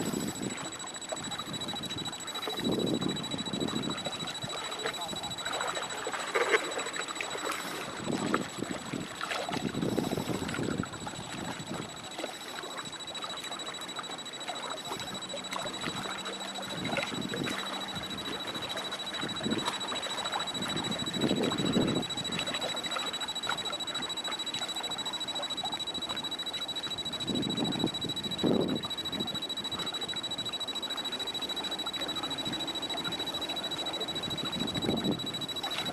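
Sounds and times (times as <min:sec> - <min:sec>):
choppy water: 0:00.0 - 0:35.9
thin high-pitched whine: 0:00.0 - 0:35.9.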